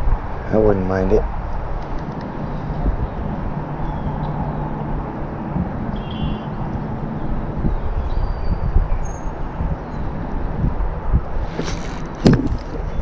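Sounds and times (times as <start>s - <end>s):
faint bird chirps: 6.0s - 6.6s.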